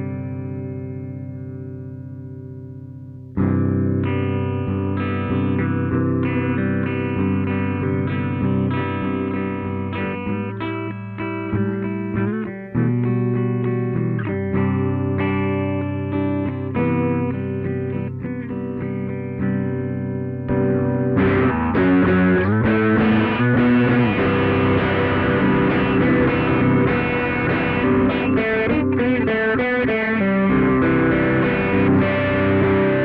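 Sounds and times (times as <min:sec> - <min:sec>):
distorted electric guitar: 0:00.0 - 0:33.0.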